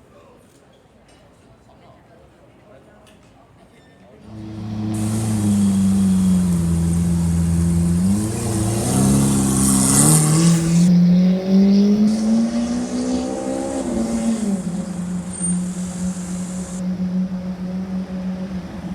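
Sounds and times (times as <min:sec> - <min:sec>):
car engine accelerating: 0:04.2 - 0:18.9.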